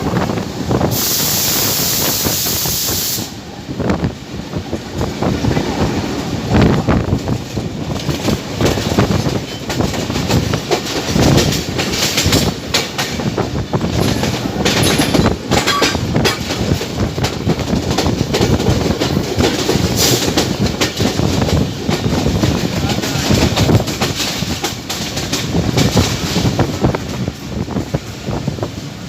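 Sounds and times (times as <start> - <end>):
diesel train rumbling: 0.0 - 29.0
wheels clattering over rail joints: 7.1 - 28.0.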